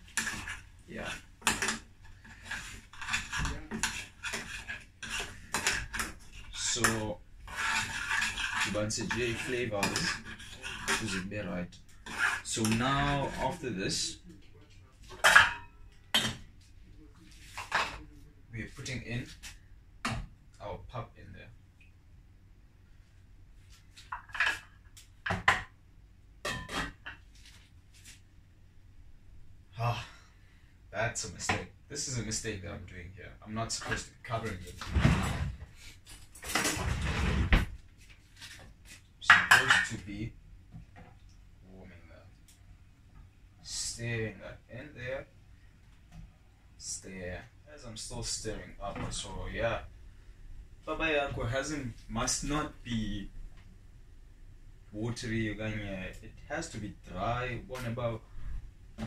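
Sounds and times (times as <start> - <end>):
utensil scraping a pot: 0.0 - 14.0.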